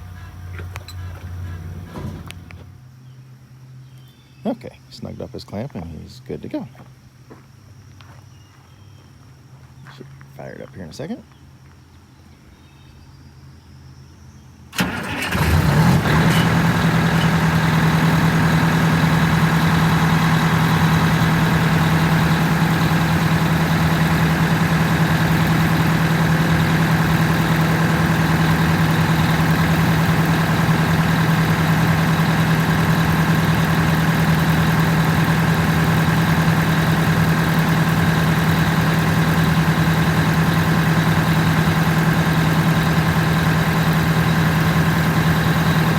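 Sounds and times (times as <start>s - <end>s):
diesel engine starting and idling: 0.0s - 2.9s, 14.7s - 45.9s.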